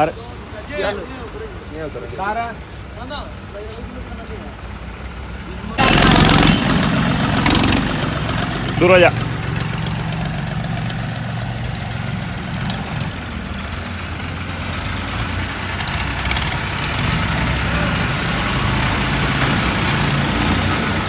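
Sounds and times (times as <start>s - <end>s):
tractor diesel engine idling: 0.0s - 21.0s.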